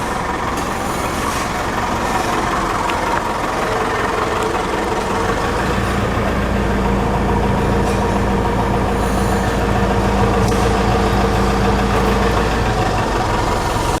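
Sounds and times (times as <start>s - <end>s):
steady low hum: 0.0s - 14.0s
truck engine idling: 0.0s - 14.0s.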